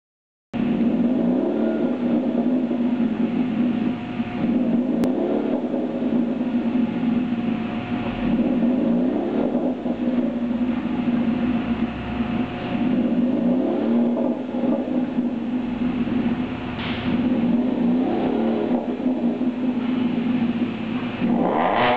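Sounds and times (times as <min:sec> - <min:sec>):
car exhaust drone: 0:00.6 - 0:21.9.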